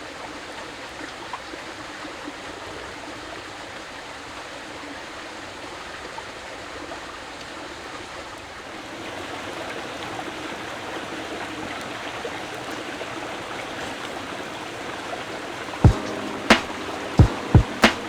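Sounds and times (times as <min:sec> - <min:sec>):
water rushing: 0:08.6 - 0:18.0.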